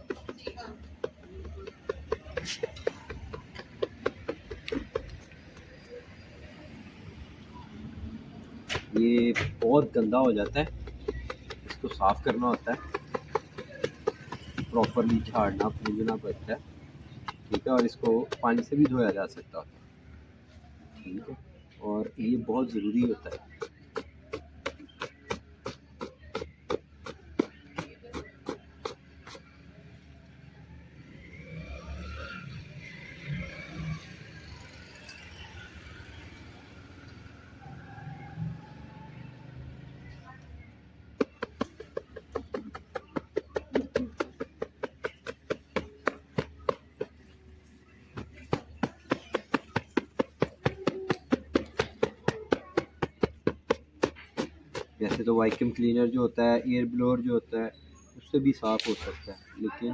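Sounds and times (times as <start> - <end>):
sharp tapping: 0.0 - 6.3, 8.7 - 19.6, 22.7 - 29.6, 41.1 - 55.8
car part being beaten: 17.2 - 19.4.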